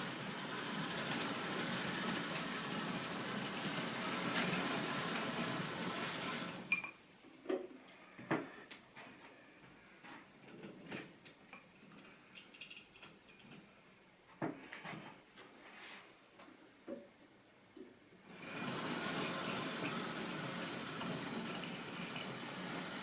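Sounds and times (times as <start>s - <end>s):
model train running on track: 0.0s - 6.6s, 18.4s - 23.0s
small parts clicking: 11.9s - 13.7s.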